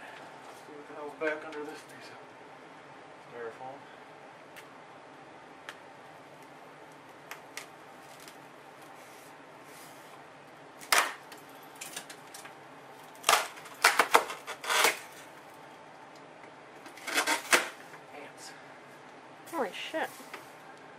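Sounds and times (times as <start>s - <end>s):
styrofoam cracking and snapping: 13.2s - 15.1s.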